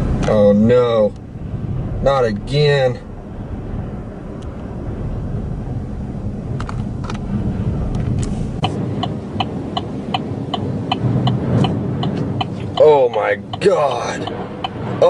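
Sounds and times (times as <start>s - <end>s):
truck cab road rumble: 0.0s - 15.0s
scattered clicks: 8.0s - 14.8s
rapid pitched ticking: 8.6s - 15.0s.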